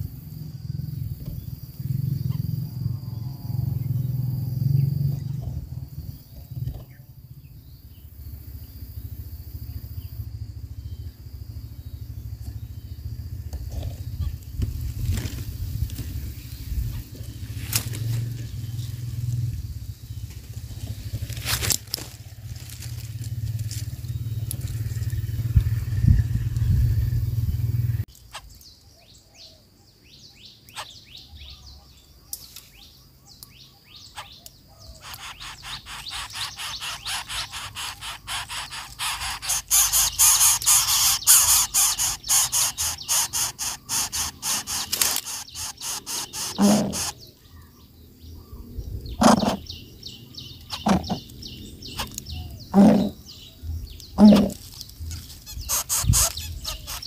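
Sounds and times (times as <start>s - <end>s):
birds chirping: 0.0s - 57.0s
low rumble: 0.1s - 28.1s.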